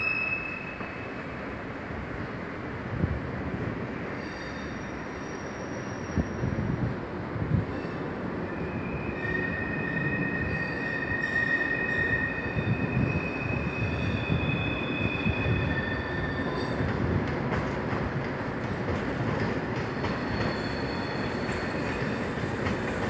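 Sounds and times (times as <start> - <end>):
high wheel squeal: 0.0 - 1.3, 4.2 - 6.6, 7.7 - 16.8, 19.9 - 22.4
train wheels rumbling on track: 0.0 - 23.0.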